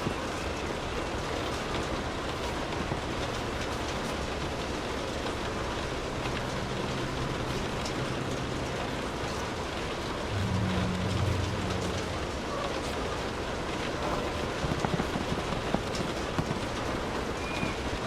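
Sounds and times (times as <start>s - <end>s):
steady rain falling: 0.0s - 18.0s
low hum: 5.9s - 13.7s.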